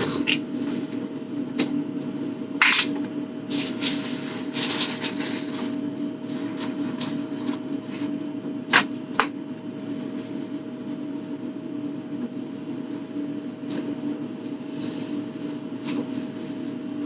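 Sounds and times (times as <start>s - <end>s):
steady low hum: 0.0s - 17.0s
rustling and rubbing of jars: 3.5s - 8.2s.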